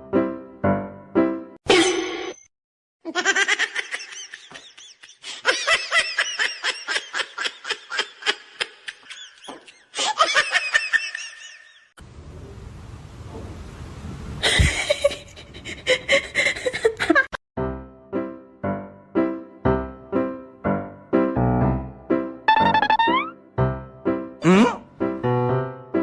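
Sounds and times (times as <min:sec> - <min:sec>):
high-pitched laughter: 0:03.1 - 0:11.9.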